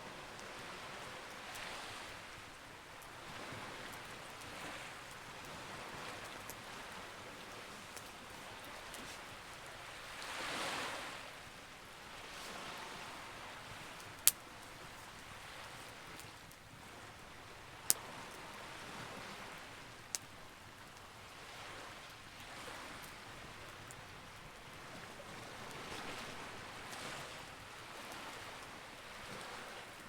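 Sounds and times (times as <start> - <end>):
sea waves washing in: 0.0 - 20.1
wood fire crackle: 1.5 - 10.0, 13.7 - 18.1.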